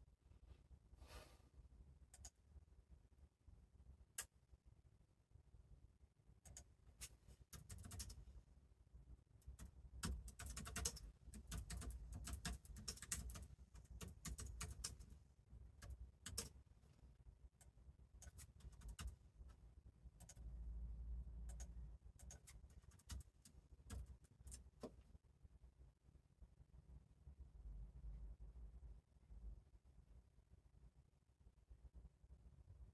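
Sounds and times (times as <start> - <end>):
faint clicks and taps: 21.5 - 25.2.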